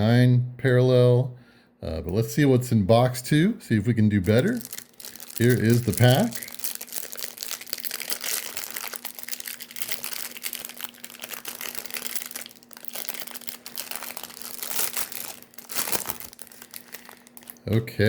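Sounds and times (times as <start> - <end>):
wrapper crinkling and tearing: 4.2 - 17.8.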